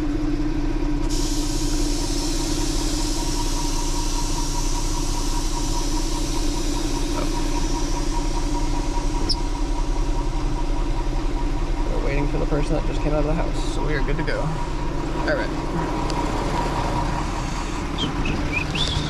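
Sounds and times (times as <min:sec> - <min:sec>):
vehicle engine idling: 0:00.0 - 0:19.0
high hiss: 0:01.1 - 0:09.6.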